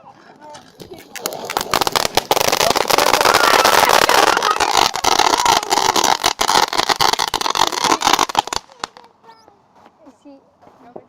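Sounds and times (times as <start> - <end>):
firework hissing and crackling: 0.6 - 9.1.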